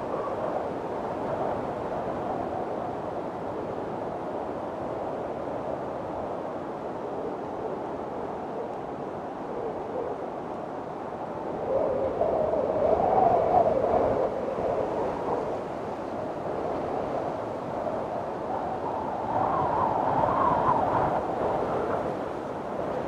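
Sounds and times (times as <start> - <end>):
strong wind howling: 0.0 - 23.0.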